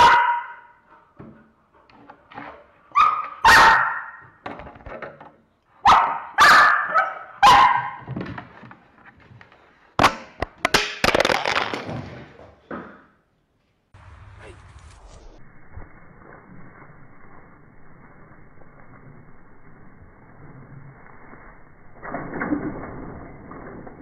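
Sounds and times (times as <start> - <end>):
dog barking: 0.0 - 0.8, 2.9 - 4.2, 5.8 - 8.1.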